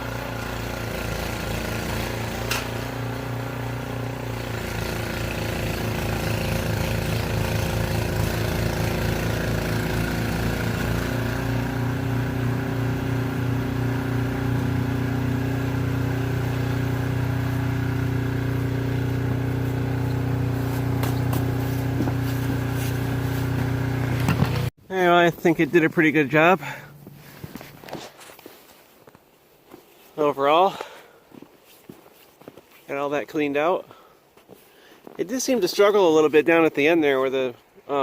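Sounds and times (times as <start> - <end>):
snowblower engine running: 0.0 - 28.4.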